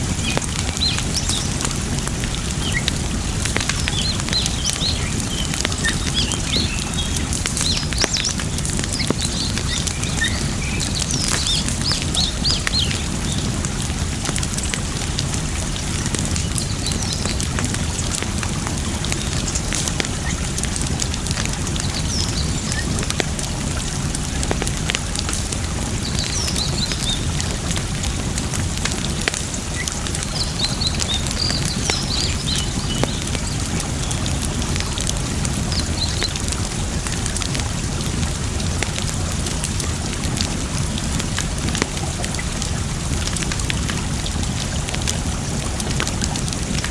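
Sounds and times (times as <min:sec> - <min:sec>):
small birds chirping: 0:00.0 - 0:14.7, 0:15.7 - 0:27.9, 0:29.0 - 0:36.6
campfire crackling and popping: 0:00.0 - 0:46.9
running water: 0:00.0 - 0:46.9.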